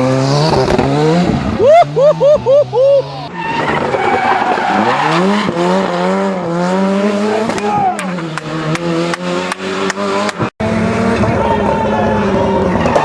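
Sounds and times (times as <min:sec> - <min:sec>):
rally car engine revving: 0:00.0 - 0:13.0
exhaust cracks: 0:07.0 - 0:10.5.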